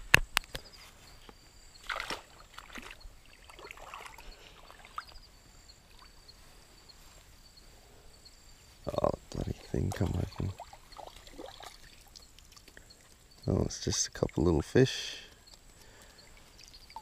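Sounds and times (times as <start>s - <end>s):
water splashing and sloshing: 1.8s - 5.2s, 9.8s - 12.7s.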